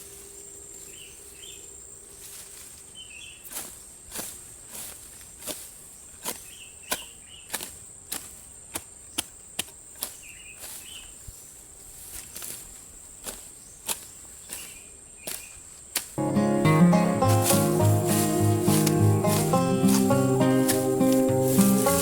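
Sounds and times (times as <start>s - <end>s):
insect drone: 0.0s - 3.8s, 16.9s - 22.0s
blade chopping grass: 3.5s - 10.8s, 12.1s - 22.0s
music: 16.2s - 22.0s.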